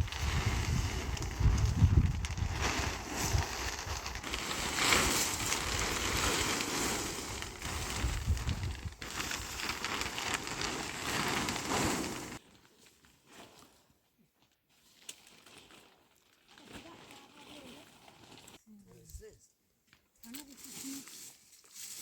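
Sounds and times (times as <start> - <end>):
wind gusts on microphone: 0.0 - 9.5
rustling and crackling noise: 0.0 - 22.0.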